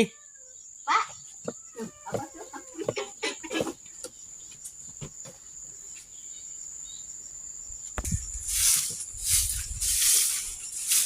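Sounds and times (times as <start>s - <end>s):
insect trill: 0.0s - 11.0s
broom sweeping: 8.0s - 11.0s.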